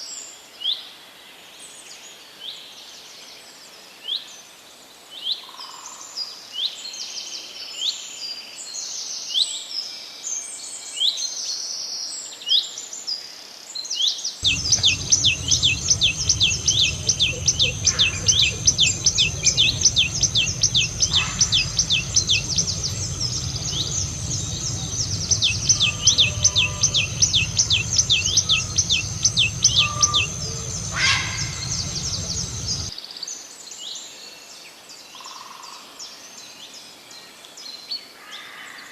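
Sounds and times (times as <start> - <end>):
sharp downslurred bird notes: 14.4 - 32.9
songbirds chirping: 14.4 - 32.9
steady low rumble: 14.4 - 32.9.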